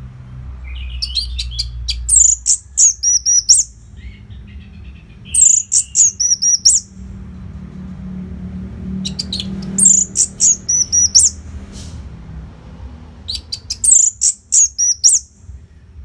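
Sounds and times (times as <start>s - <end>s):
soft bird twittering: 0.6s - 7.0s, 9.0s - 11.4s, 13.3s - 15.4s
thrush singing: 0.7s - 4.2s, 5.2s - 6.9s, 9.0s - 11.4s, 13.2s - 15.3s.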